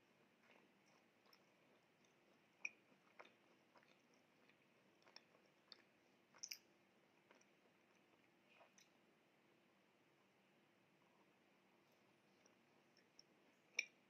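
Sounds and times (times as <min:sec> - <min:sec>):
person chewing: 0:00.2 - 0:08.9
wet mouth clicks: 0:02.6 - 0:06.7.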